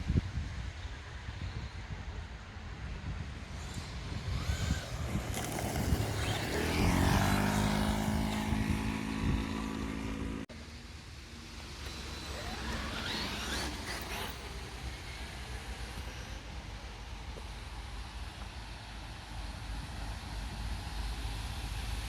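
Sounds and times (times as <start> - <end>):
electric rc car motor whine: 3.2 - 17.5.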